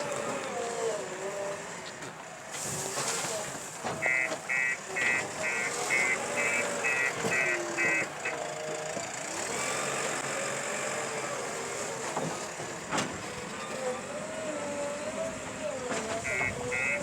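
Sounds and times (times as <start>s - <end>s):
engine running: 0.0s - 17.0s
reversing alarm beeping: 4.0s - 8.4s, 16.2s - 17.0s.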